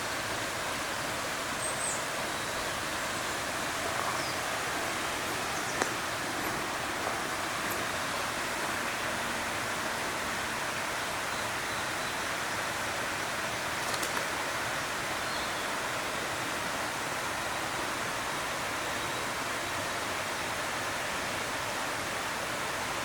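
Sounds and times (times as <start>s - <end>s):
steady rushing noise: 2.1s - 11.0s.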